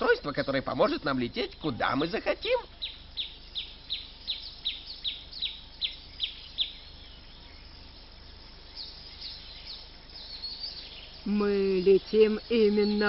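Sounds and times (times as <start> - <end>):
bird chirping: 0.0 - 13.0
faint steady background noise: 0.0 - 13.0.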